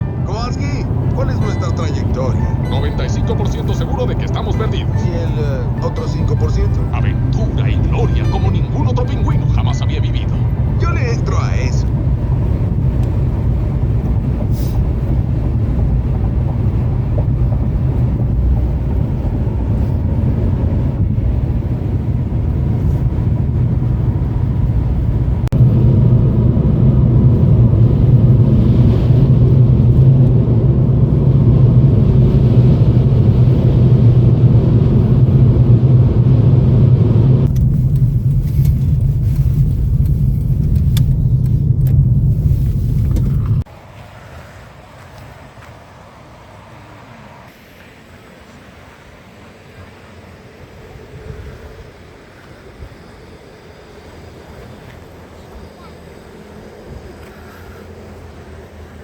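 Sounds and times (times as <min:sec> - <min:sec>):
strong wind on microphone: 0:00.0 - 0:43.7.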